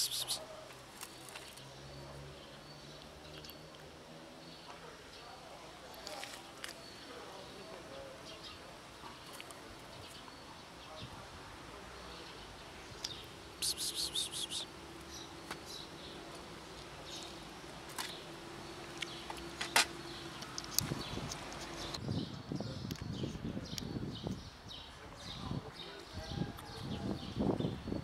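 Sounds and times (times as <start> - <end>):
small bird chirps: 12.9 - 16.1.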